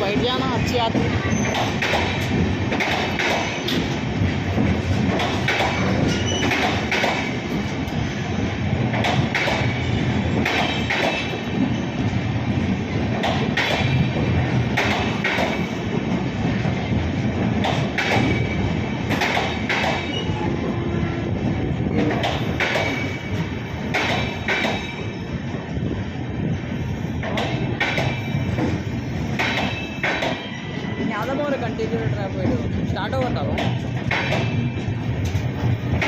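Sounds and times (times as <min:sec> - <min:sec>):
wheels clacking over rail joints: 0:00.0 - 0:20.4, 0:21.8 - 0:25.2, 0:27.2 - 0:36.0
train wagons rumbling: 0:00.0 - 0:36.0.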